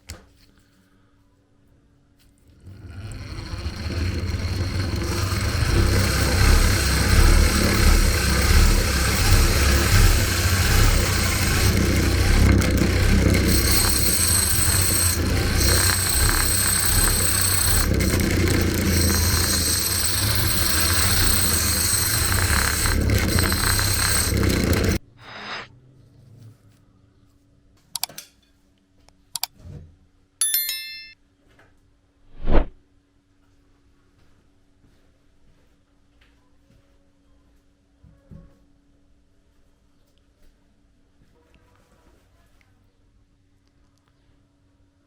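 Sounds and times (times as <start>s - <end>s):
hand-cranked grinder running: 2.6s - 25.0s.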